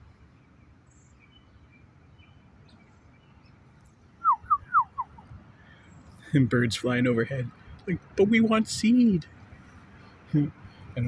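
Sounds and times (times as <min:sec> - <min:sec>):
faint bird chirps: 0:00.3 - 0:06.4.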